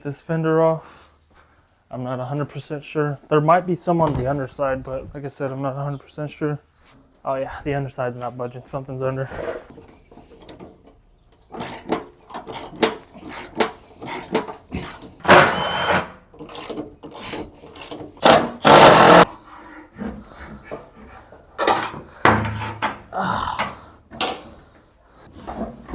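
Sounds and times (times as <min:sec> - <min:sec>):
loud scraping: 0:18.2 - 0:19.3.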